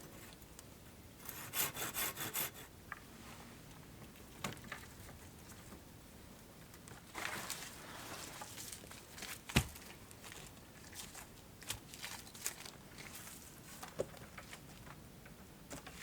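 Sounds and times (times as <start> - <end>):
rustling: 6.9 - 15.0
sticks and twigs cracking: 8.4 - 15.0.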